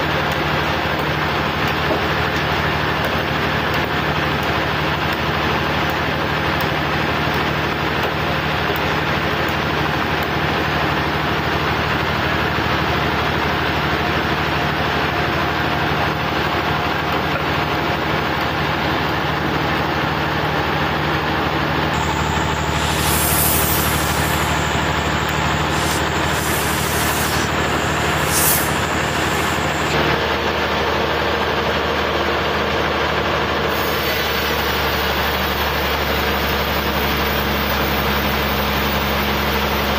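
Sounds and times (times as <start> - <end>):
sawmill engine running: 21.9 - 30.2
short hissing: 22.0 - 30.2.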